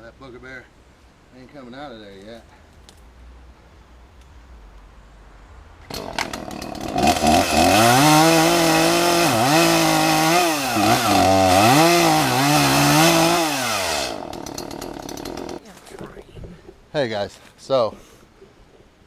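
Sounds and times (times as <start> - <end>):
chainsaw cutting wood: 5.9 - 15.6.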